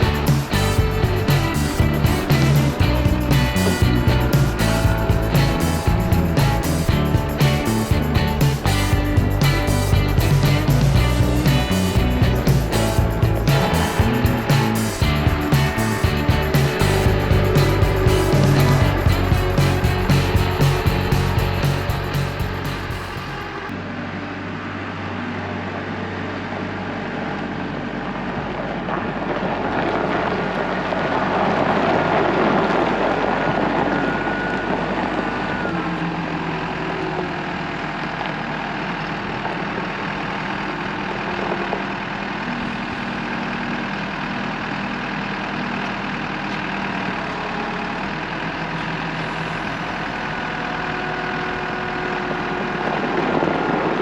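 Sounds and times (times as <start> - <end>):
farm vehicle engine running: 0.0 - 54.0.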